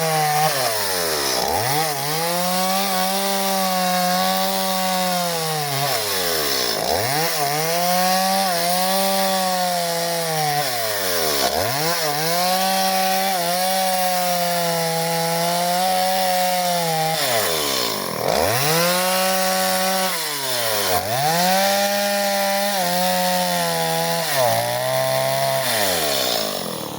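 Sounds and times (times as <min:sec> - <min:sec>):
chainsaw cutting wood: 0:00.0 - 0:26.9.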